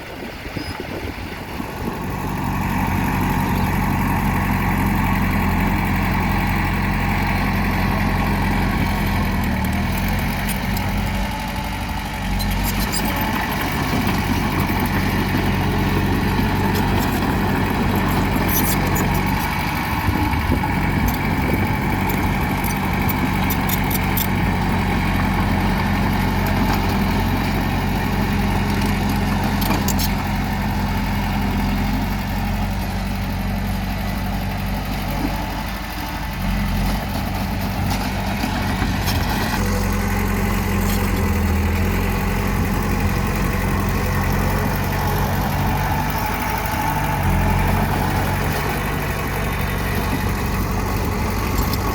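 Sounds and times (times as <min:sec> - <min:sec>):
bulldozer diesel engine running: 0:00.0 - 0:51.9.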